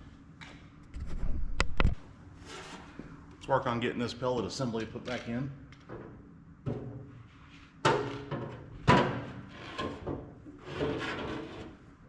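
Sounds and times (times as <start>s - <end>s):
metal scraping and rubbing: 9.3s - 11.8s.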